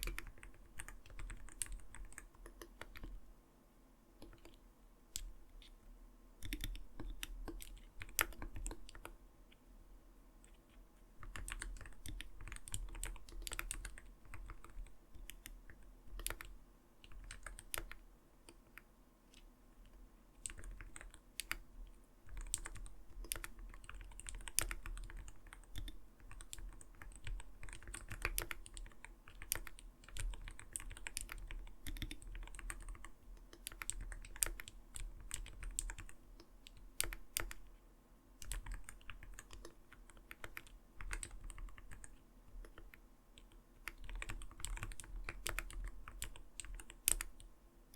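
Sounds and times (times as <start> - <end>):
keyboard typing clacks: 22.3 - 36.2, 38.4 - 43.0, 43.9 - 47.4.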